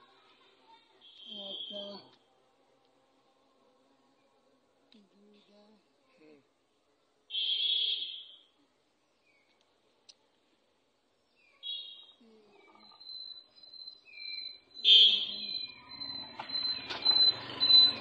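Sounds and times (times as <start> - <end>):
thin steady high tone: 0.0 - 2.2, 11.6 - 18.0
low noisy background: 0.0 - 18.0
high bird chirps: 11.4 - 18.0.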